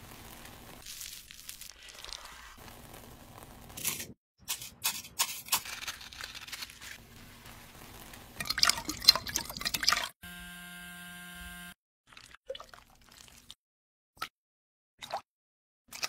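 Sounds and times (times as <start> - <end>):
dried seaweed crackling: 0.0 - 3.8
powder rustling through a sieve: 0.0 - 4.0, 4.6 - 9.0.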